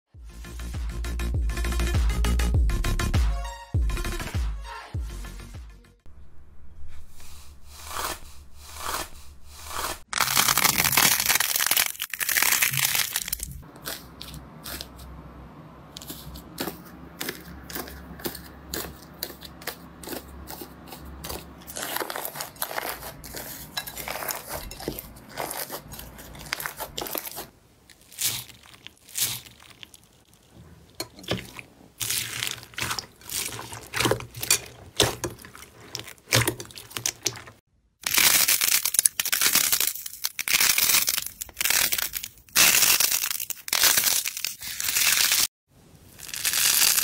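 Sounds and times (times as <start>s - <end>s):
slime crackling and tearing: 9.7s - 14.8s, 16.1s - 45.5s, 46.2s - 47.0s.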